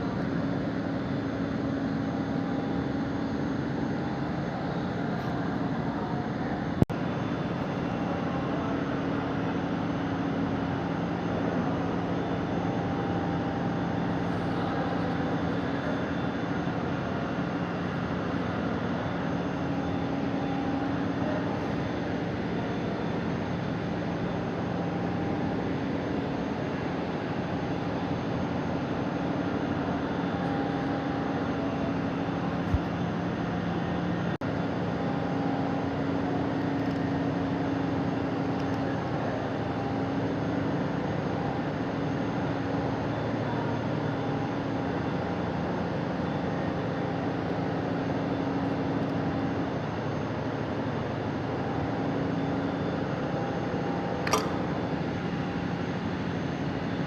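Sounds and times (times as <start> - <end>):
steady mechanical hum: 0.0 - 57.0
sharp click: 54.2 - 54.7.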